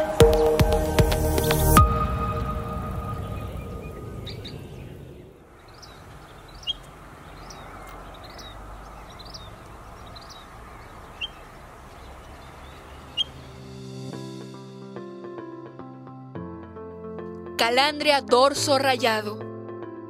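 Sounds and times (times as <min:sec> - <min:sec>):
intro music: 0:00.0 - 0:05.4, 0:12.1 - 0:18.0
bird chirping: 0:00.0 - 0:14.1
outdoor background noise: 0:00.0 - 0:14.2.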